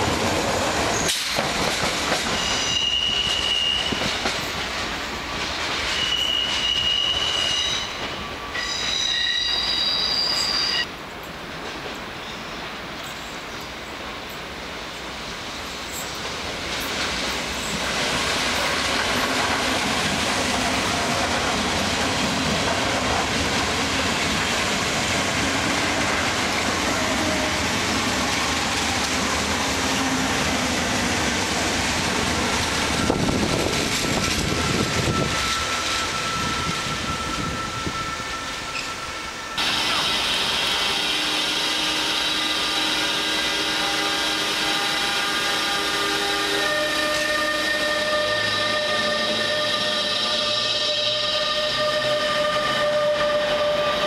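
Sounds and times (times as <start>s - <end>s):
train clatter: 0.0s - 8.9s, 10.2s - 14.6s, 15.8s - 37.5s
train wheels rushing on rail: 0.0s - 54.0s
locomotive whine of held tones: 2.2s - 4.3s, 5.9s - 10.9s, 32.8s - 54.0s.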